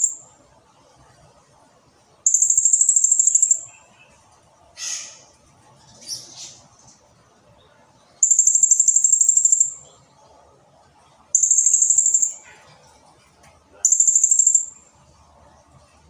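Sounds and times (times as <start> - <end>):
parrot high rapid trill: 0.0 - 0.2, 2.3 - 3.7, 8.2 - 9.8, 11.4 - 12.5, 13.8 - 14.8
parrot chirps: 2.3 - 3.9, 4.8 - 5.3, 8.2 - 9.9, 11.4 - 12.5, 13.8 - 14.8.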